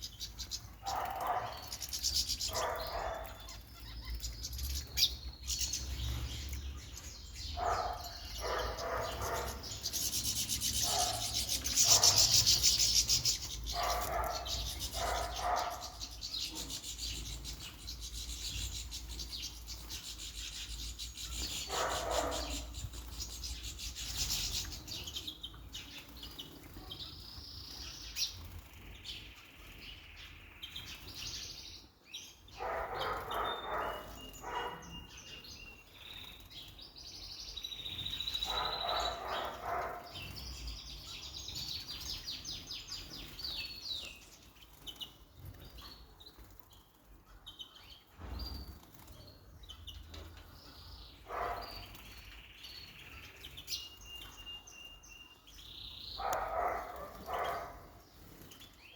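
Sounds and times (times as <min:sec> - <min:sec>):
birds splashing and fluttering in water: 0:00.0 - 0:31.5, 0:32.4 - 0:55.6, 0:56.2 - 0:58.9
bird chirps and whistled song: 0:51.3 - 0:57.7.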